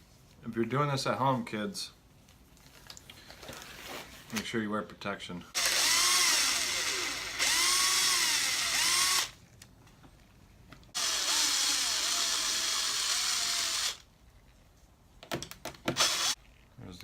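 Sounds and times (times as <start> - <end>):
power drill spinning out bolts: 5.6 - 9.4, 10.9 - 14.0, 15.9 - 16.4.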